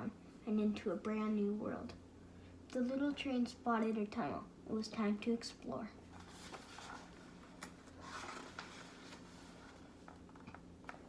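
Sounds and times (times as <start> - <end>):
paper rustling: 6.1 - 11.0.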